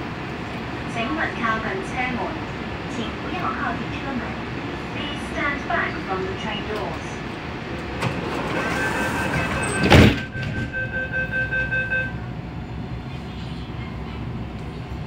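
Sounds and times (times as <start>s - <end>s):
train steady hum: 0.0s - 15.0s
train doors thumping shut: 7.7s - 11.8s
door-closing warning beeps: 8.0s - 12.1s.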